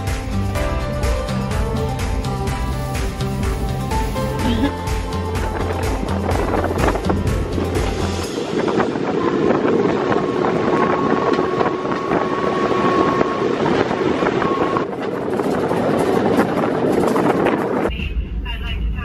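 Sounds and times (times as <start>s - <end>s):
train carriage rattling on rails: 3.0s - 18.0s.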